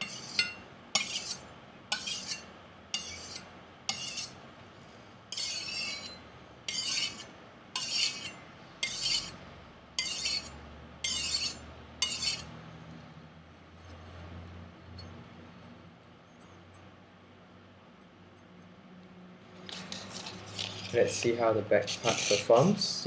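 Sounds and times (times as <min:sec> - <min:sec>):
knife scraping on sharpener: 0:00.0 - 0:04.4, 0:05.3 - 0:09.4, 0:10.0 - 0:12.5, 0:19.7 - 0:22.7.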